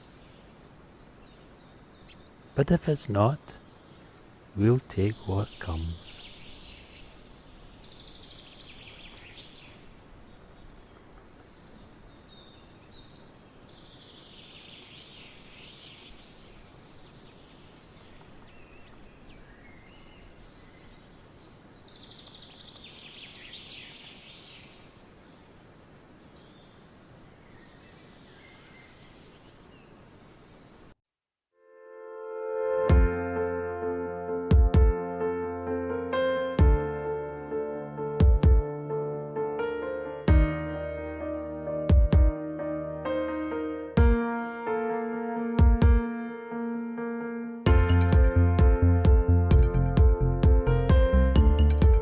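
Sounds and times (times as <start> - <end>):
faint bird chirps: 0.0 - 31.0
songbird singing: 0.0 - 31.0
steady background hiss: 0.0 - 31.0.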